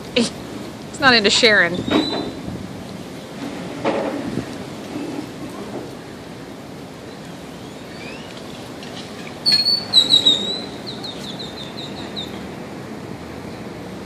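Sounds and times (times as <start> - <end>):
outdoor background noise: 0.0 - 14.0
bird high chirps: 7.2 - 8.6, 9.2 - 12.4.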